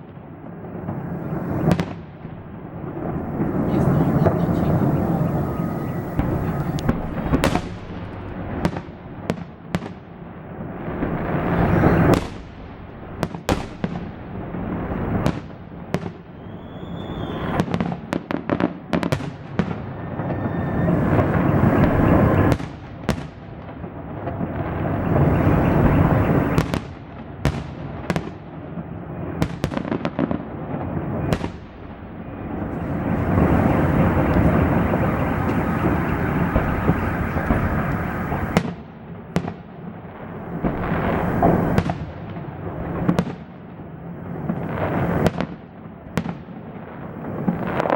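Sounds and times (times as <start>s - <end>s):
dense rumbling din: 0.7s - 9.2s, 19.8s - 22.5s, 24.3s - 26.6s, 32.3s - 38.6s, 40.2s - 41.9s
firework shells banging: 0.8s - 9.3s, 19.8s - 22.6s, 24.4s - 26.6s, 32.5s - 38.6s, 40.3s - 42.0s.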